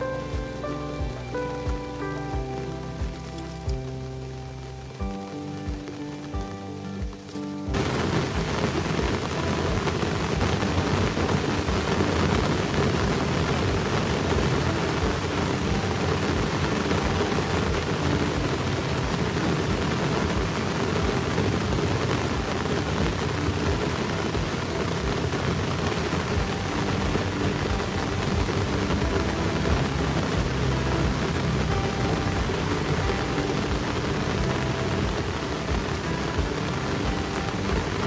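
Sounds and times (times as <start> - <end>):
heavy rain pouring: 0.0 - 38.0
raindrops tapping near microphone: 0.0 - 38.0.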